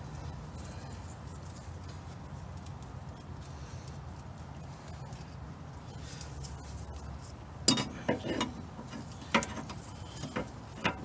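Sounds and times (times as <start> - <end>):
metal parts clinking and knocking: 7.7 - 11.0.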